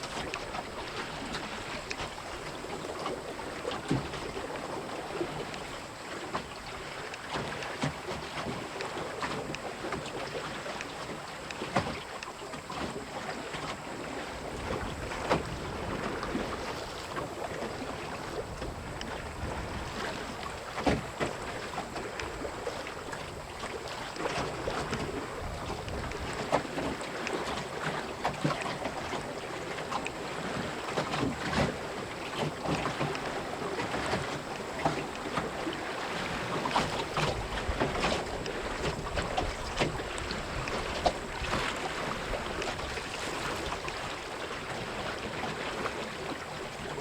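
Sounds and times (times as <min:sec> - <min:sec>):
water rushing along a hull: 0:00.0 - 0:47.0
waves slapping against hull: 0:00.0 - 0:47.0
wind buffeting microphone: 0:14.4 - 0:26.7.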